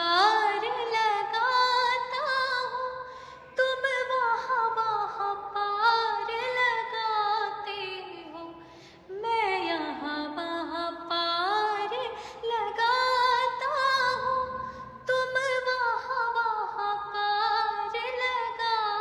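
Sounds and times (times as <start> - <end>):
woman singing devotional song: 0.0 - 19.0.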